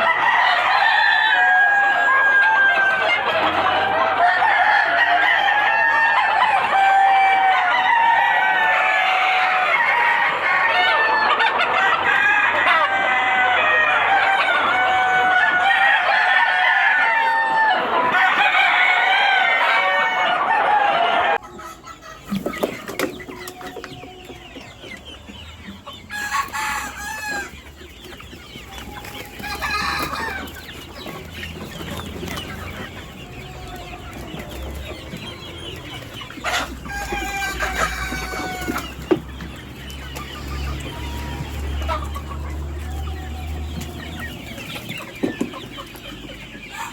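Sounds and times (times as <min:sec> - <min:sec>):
chickens clucking and calling: 0:00.0 - 0:46.9
drawn-out chicken calls: 0:00.0 - 0:46.9.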